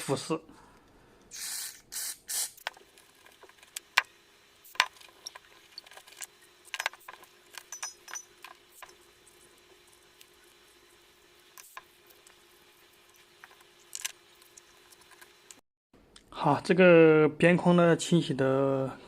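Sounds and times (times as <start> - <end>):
cleaning spray hissing: 1.3 - 2.6.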